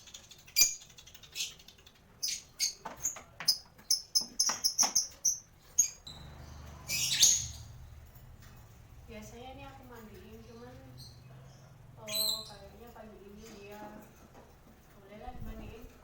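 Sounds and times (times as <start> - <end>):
lovebird chirping: 0.0 - 7.9, 10.4 - 12.8.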